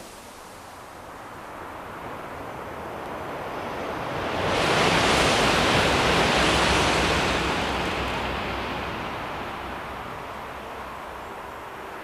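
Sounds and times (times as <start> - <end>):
high-speed train rushing past: 0.0 - 12.0.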